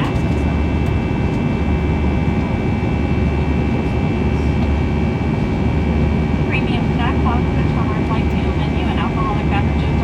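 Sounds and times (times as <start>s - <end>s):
jet engine drone in cabin: 0.0s - 10.0s.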